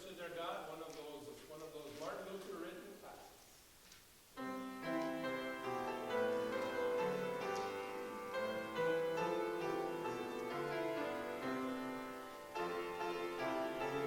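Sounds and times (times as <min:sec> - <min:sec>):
piano playing slow chords: 0:04.4 - 0:14.0.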